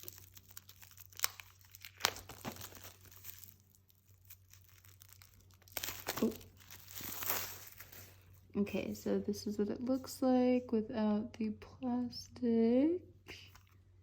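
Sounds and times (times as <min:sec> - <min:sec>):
plastic shrink-wrap crinkling: 0:00.0 - 0:10.1.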